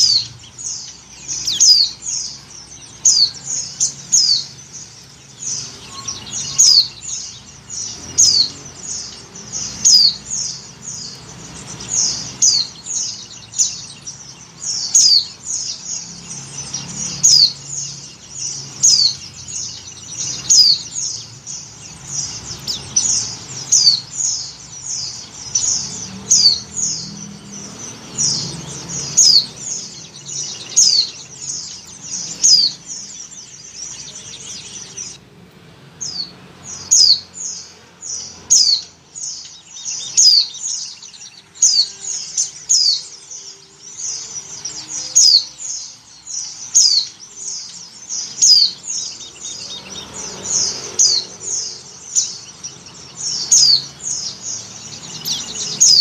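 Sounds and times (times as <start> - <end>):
bird high chirps sweeping downward: 0.0 - 56.0.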